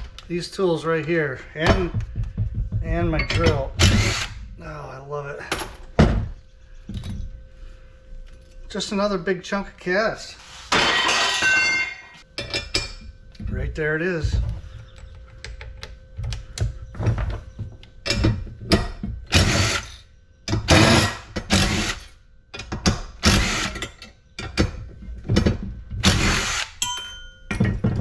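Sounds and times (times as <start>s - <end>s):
hand tools on metal screws: 26.0s - 27.0s.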